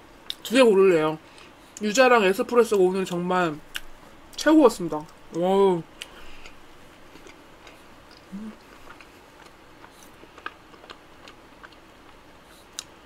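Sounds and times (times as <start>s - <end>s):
closed-mouth hum: 2.7s - 13.0s
chewing mouth clicks: 7.2s - 12.9s.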